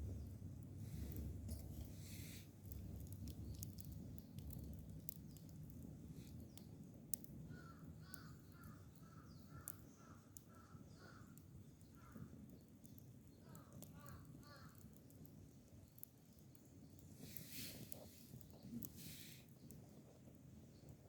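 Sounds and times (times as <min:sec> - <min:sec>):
campfire crackling: 0:00.0 - 0:21.0
crow cawing: 0:07.5 - 0:11.3, 0:13.5 - 0:14.8.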